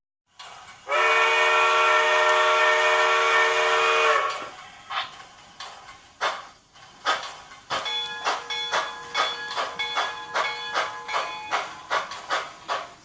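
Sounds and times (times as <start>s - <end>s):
steam locomotive exhaust chuffs: 0.3s - 13.0s
steam locomotive chime whistle: 0.8s - 4.5s, 7.8s - 12.1s.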